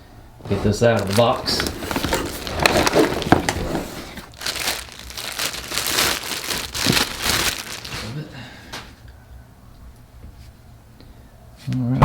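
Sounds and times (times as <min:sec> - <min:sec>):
packaging crinkling and rustling: 0:00.4 - 0:09.0.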